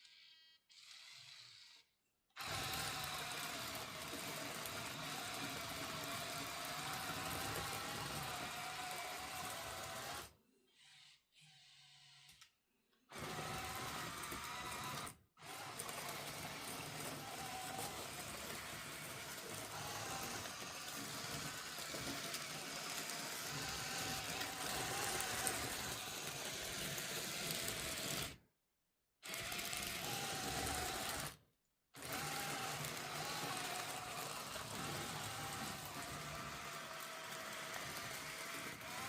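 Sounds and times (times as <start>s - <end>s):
small electric motors whirring: 0.0s - 28.4s, 29.2s - 31.4s, 32.0s - 39.0s.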